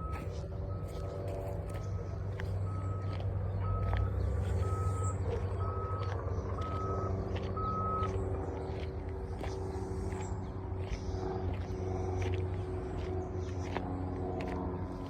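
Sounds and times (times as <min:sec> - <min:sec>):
reversing alarm beeping: 0:00.0 - 0:08.2
low steady rumble: 0:00.0 - 0:15.0.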